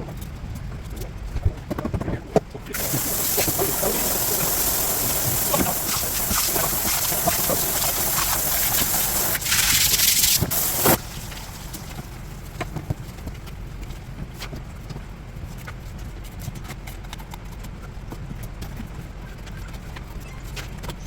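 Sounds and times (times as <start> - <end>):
running water gushing and splashing: 2.8 - 12.5.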